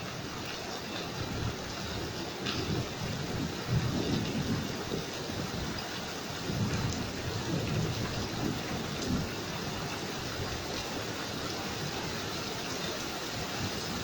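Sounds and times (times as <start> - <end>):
steady rain: 0.0 - 14.0
thunder rumbling: 1.1 - 14.0.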